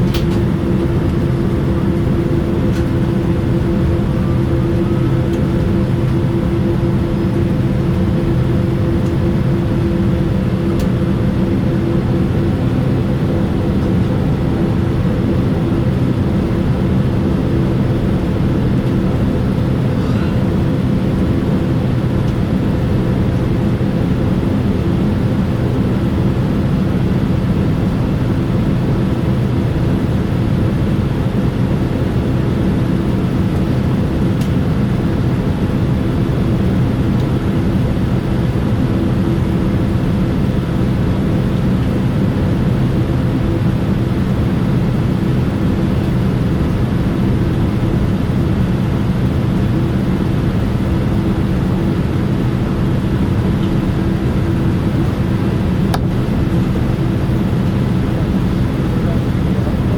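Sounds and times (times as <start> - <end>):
jet engines heard from cabin: 0.0 - 59.9.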